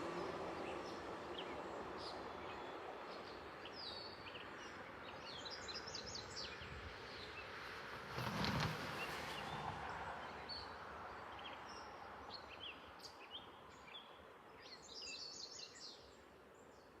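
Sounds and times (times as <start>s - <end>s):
outdoor background noise: 0.0s - 17.0s
small birds chirping: 10.2s - 17.0s.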